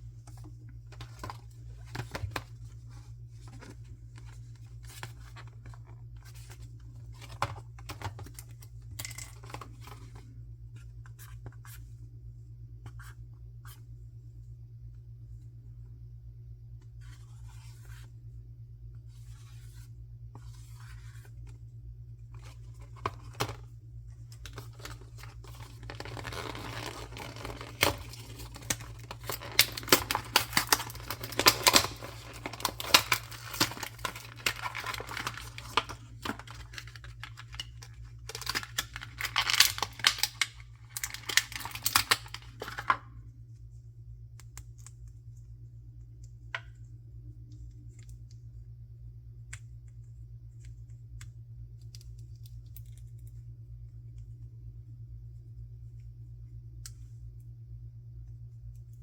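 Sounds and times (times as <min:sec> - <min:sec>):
steady low hum: 0:00.0 - 0:59.0
packaging torn and crinkled: 0:24.5 - 0:42.9.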